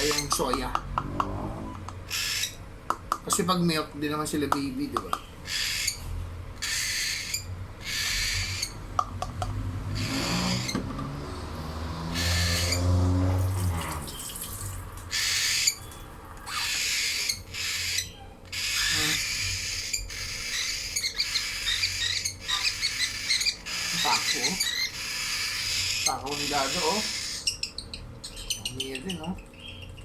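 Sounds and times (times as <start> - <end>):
chicks raspy begging calls: 1.7 - 2.7, 5.4 - 9.0, 9.9 - 10.7, 12.0 - 13.1, 15.1 - 15.8, 16.4 - 29.7.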